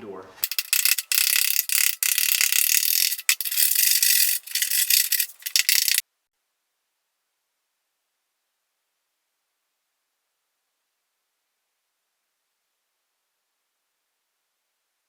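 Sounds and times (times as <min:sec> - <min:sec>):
metal tool scraping sealant off steel: 0:00.4 - 0:06.0.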